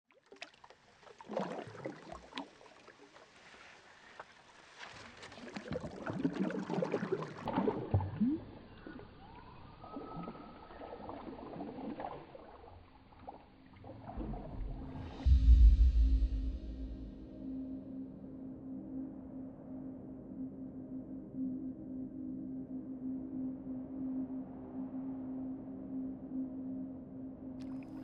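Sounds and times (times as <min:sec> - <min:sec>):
water splashing and sloshing: 0:00.1 - 0:17.3, 0:27.6 - 0:28.0.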